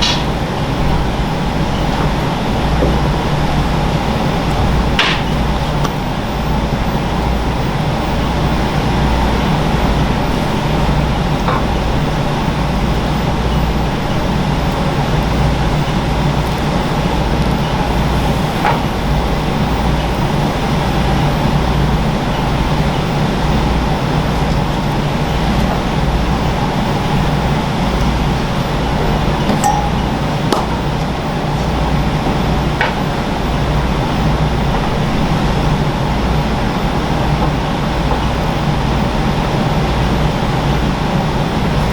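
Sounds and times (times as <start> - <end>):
steady machine hum: 0.0 - 41.9
utensils clinking: 29.4 - 31.8.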